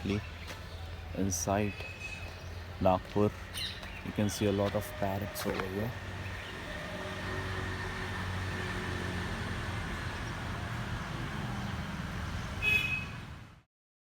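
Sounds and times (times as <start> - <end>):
vehicle engine droning: 0.0 - 13.5.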